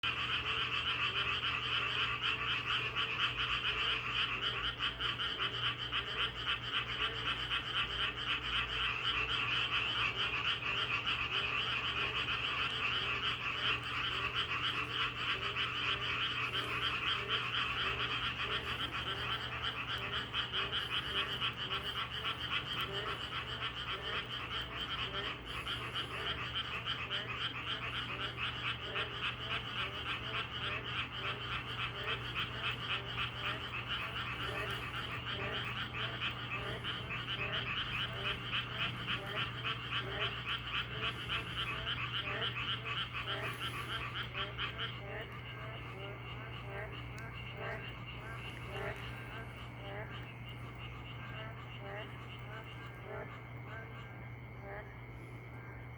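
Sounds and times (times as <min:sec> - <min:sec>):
chorus of frogs croaking: 0:00.0 - 0:55.9
low frog calls: 0:00.0 - 0:55.9.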